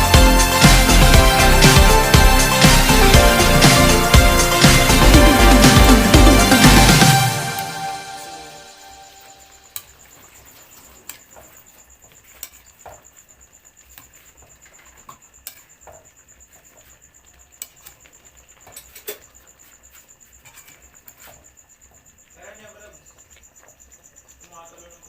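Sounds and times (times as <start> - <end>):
high-pitched insect trill: 7.8 - 25.0.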